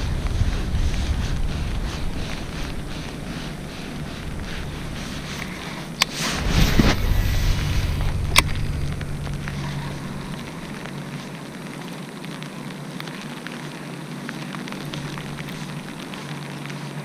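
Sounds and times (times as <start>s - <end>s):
pouring rain: 0.0s - 17.0s.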